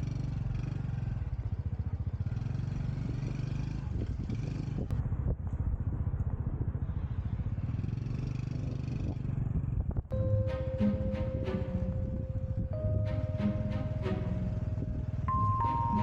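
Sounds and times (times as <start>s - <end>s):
motorcycle engine running: 0.0s - 10.0s, 13.9s - 16.0s.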